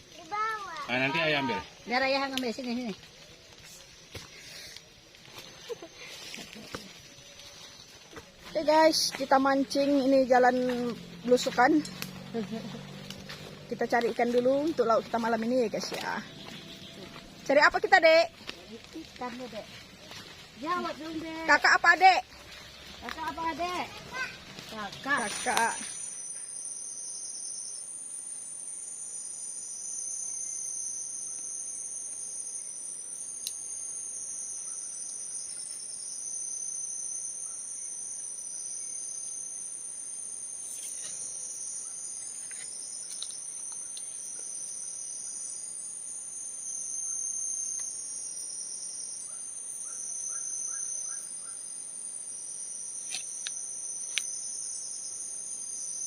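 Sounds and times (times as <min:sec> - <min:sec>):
insect chorus whine: 0:00.0 - 0:56.0
pulsing insect trills: 0:00.0 - 0:56.0.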